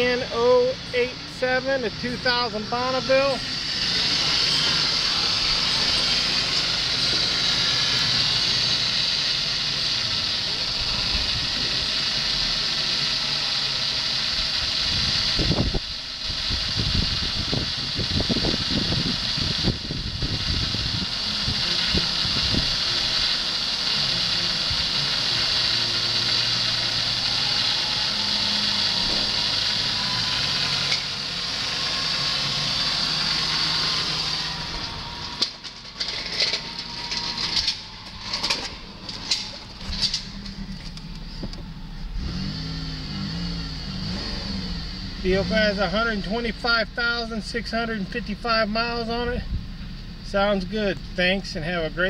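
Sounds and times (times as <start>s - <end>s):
high hiss: 0.0s - 50.4s
car engine running: 0.0s - 52.0s.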